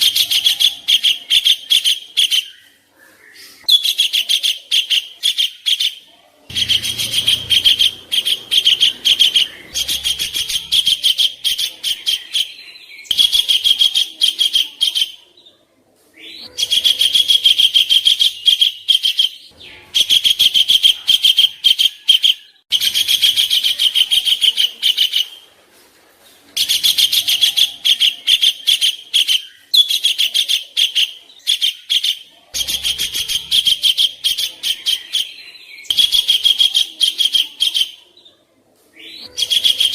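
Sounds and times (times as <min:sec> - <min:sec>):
songbird chattering: 0:00.0 - 0:15.2, 0:26.6 - 0:38.0.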